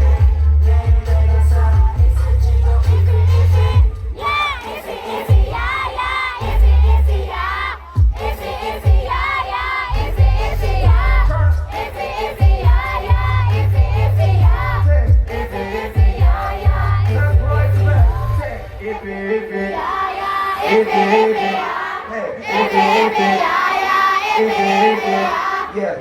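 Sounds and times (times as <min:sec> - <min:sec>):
heavy pulsing bass: 0:00.0 - 0:04.3, 0:06.4 - 0:08.2, 0:09.9 - 0:18.8
person singing: 0:00.0 - 0:04.7
live hip-hop music: 0:00.0 - 0:23.8
crowd singing along: 0:00.0 - 0:26.0.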